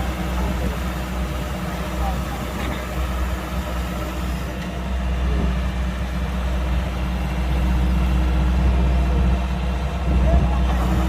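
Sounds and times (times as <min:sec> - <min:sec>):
diesel engine humming: 0:00.0 - 0:11.0.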